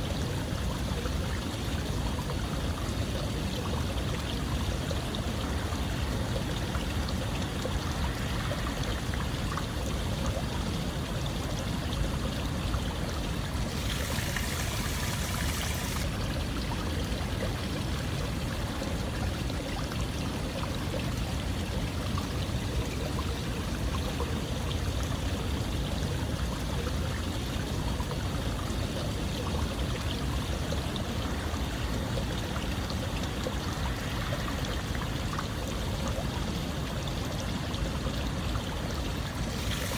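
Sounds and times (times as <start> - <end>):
water flowing like a stream: 0.0 - 39.9
hissy water splash: 13.5 - 16.2, 39.3 - 39.9.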